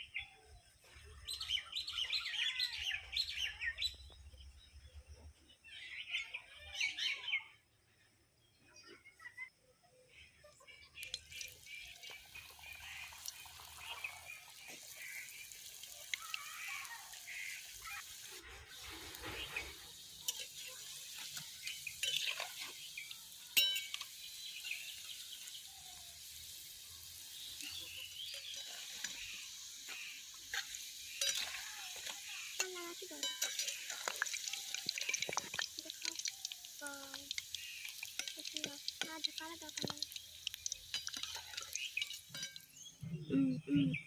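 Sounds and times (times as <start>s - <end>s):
deep-frying sizzle in hot oil: 11.0s - 42.8s
utensil scraping in pan: 16.8s - 25.6s, 27.3s - 36.6s, 37.2s - 42.7s.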